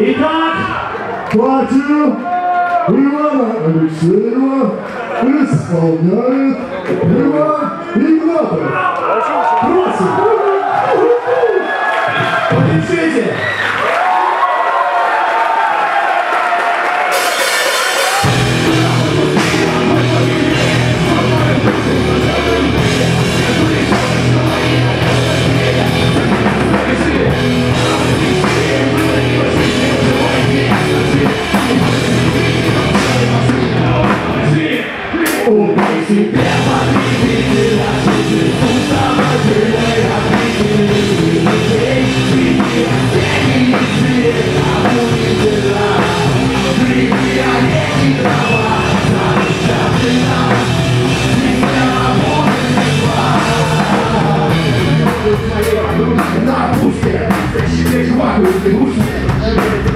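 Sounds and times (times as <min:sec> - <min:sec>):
rock band playing live: 0:16.7 - 0:59.9.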